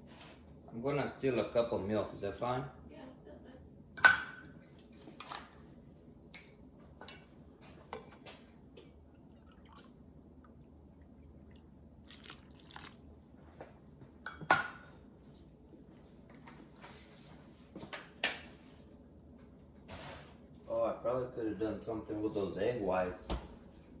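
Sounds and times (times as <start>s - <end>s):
dishes and utensils clinking: 14.2s - 15.0s.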